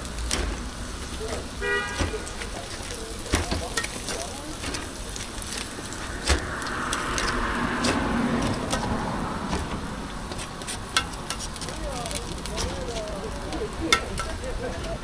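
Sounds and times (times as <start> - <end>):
car driving past: 4.5 - 11.2.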